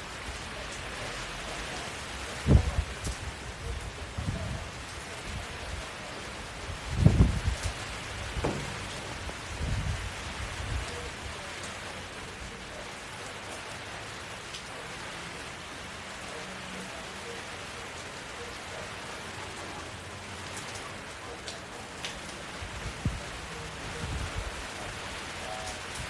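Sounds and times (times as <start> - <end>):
steady rain falling: 0.0 - 26.0
brief low thuds: 8.4 - 10.0.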